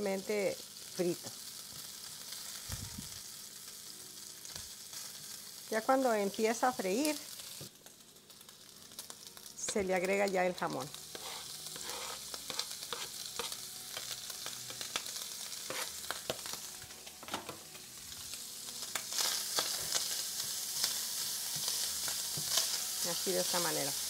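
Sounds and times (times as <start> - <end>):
bacon sizzling in a skillet: 0.0 - 24.0
spatula scraping a pan: 11.0 - 14.1, 15.6 - 16.6.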